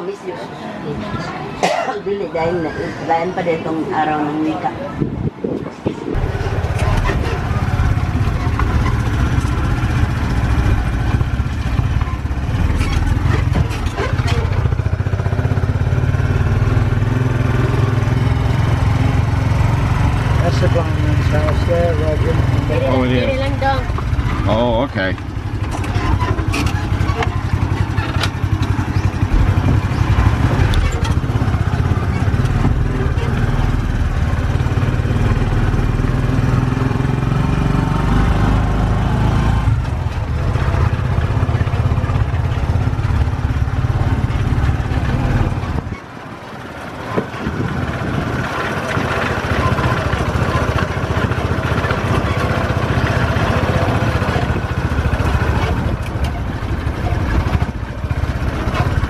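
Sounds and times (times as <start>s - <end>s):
motorcycle engine running: 6.1s - 59.0s.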